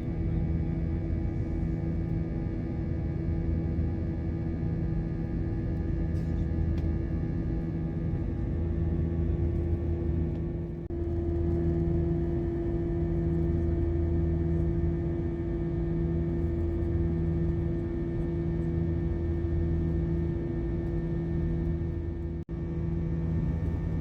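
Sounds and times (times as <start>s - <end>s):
airliner cabin drone: 0.0s - 24.0s
low hum: 5.7s - 24.0s.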